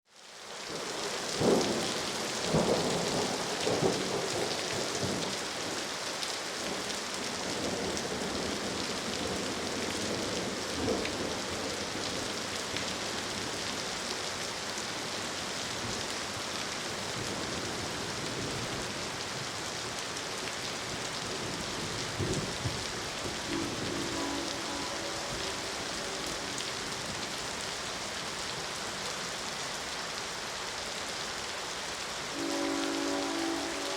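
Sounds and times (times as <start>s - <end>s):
heavy rain: 0.1s - 33.9s
thunder cracks: 22.2s - 27.2s
distant train horn: 23.3s - 27.1s, 32.3s - 33.9s.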